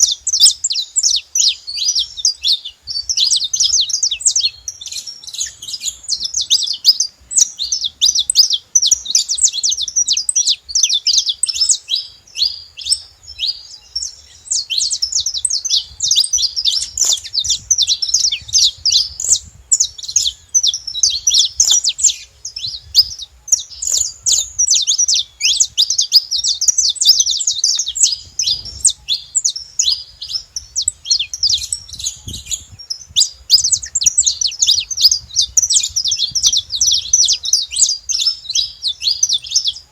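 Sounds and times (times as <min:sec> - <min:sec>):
finch chirping and singing: 0:00.0 - 0:39.9.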